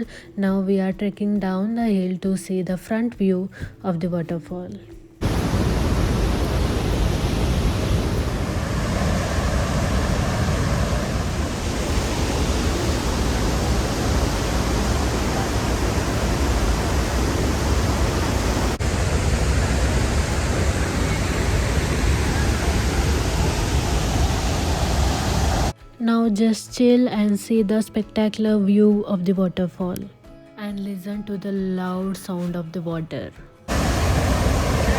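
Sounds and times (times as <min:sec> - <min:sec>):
waterfall rushing: 0:05.2 - 0:25.7, 0:33.7 - 0:34.9.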